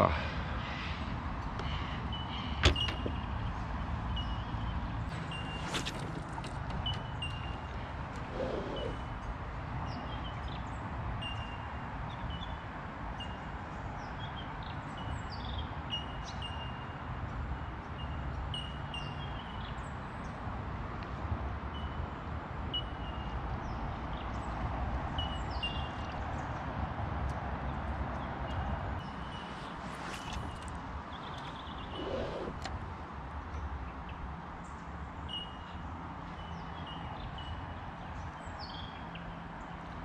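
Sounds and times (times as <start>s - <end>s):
small birds chirping: 0.0s - 12.6s, 27.6s - 40.0s.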